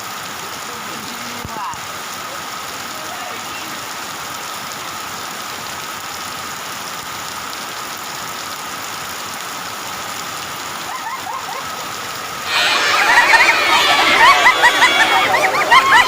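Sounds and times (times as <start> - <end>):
heavy rain falling: 0.0 - 16.0
loud voices: 10.9 - 16.0.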